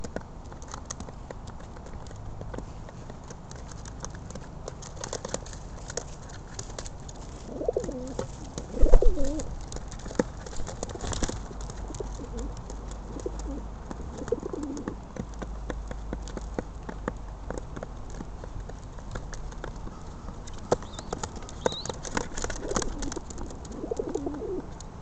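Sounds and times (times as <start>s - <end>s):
pigeons cooing: 7.4s - 9.5s, 11.8s - 15.0s, 19.9s - 24.8s.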